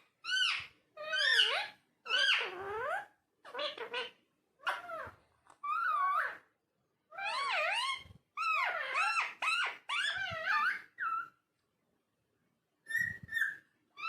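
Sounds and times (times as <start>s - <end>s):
parakeet chattering: 0.2s - 6.4s, 7.1s - 11.3s.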